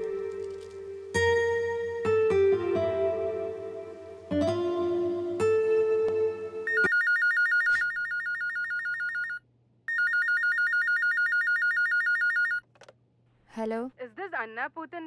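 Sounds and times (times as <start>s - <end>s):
telephone ringer warbling: 6.7s - 12.6s.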